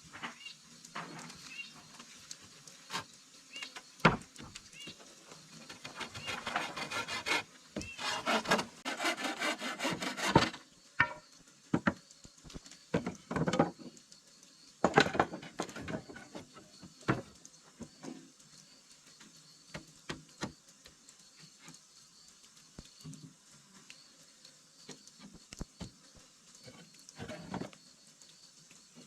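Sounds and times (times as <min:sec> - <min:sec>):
hand sawing or rasping wood: 0:05.7 - 0:10.6.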